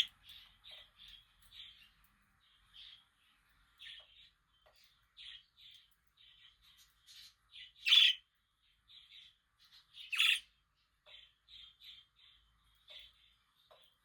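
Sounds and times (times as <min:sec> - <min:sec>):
budgerigar chirping: 0:07.1 - 0:08.2, 0:10.0 - 0:10.5.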